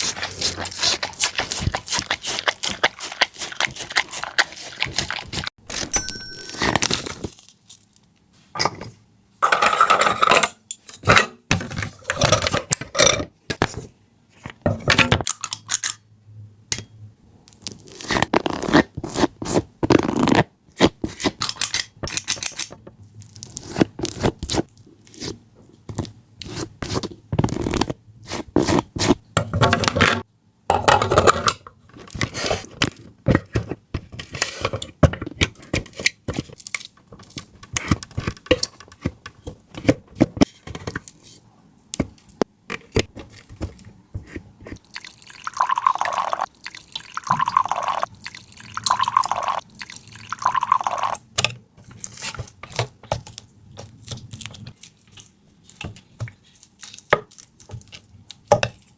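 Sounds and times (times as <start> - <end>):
kitchen clicks and scrapes: 8.6 - 16.0, 20.8 - 22.8, 26.4 - 41.4.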